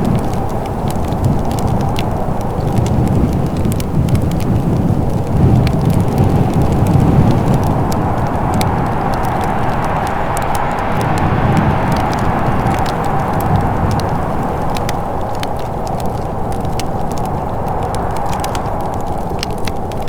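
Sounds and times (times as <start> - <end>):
wood fire crackling: 0.0 - 20.0
low rushing noise: 5.7 - 20.0.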